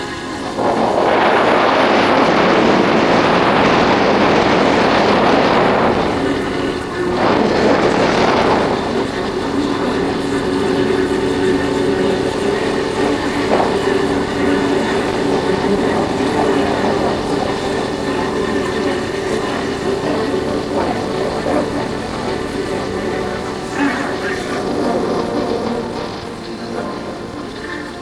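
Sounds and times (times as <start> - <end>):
motorcycle engine hum: 0.0 - 28.0
wind on microphone: 0.0 - 28.0.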